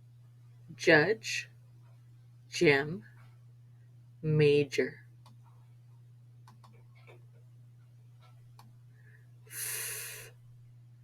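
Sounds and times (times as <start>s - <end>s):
low steady hum: 0.0s - 11.0s
woman hissing an f sound: 9.5s - 10.3s.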